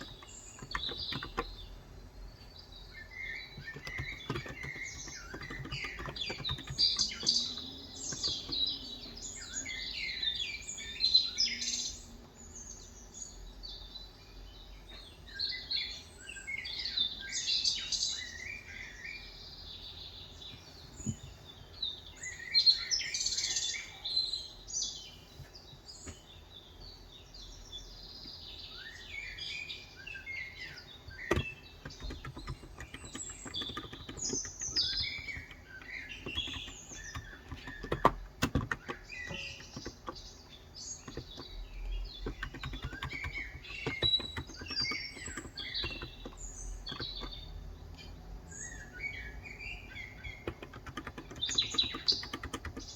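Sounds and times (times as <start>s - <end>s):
small birds chirping: 0.0s - 52.9s.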